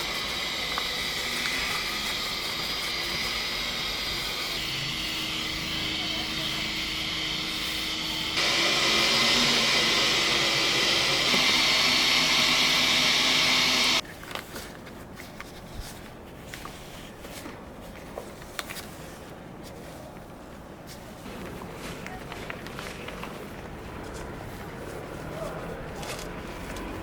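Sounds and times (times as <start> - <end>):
vacuum motor whine: 0.0 - 14.0.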